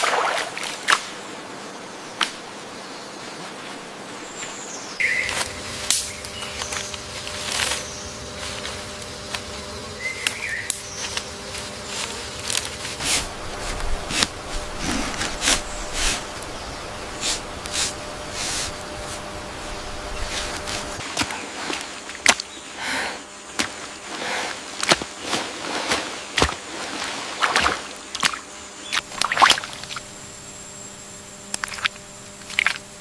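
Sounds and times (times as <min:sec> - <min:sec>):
insect buzzing: 0:00.0 - 0:33.0
sharp rustling: 0:10.8 - 0:21.1.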